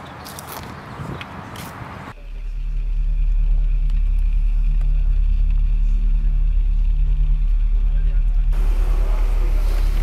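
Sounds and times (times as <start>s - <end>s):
outdoor noise: 0.0s - 10.0s
car engine idling: 2.2s - 10.0s.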